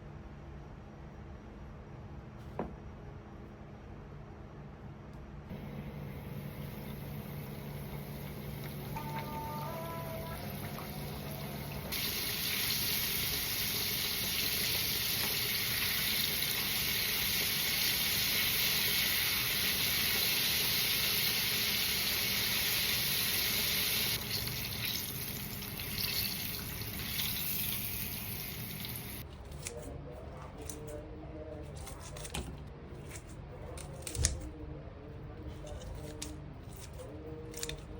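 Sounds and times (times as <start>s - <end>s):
tap water running into sink: 22.2s - 29.2s.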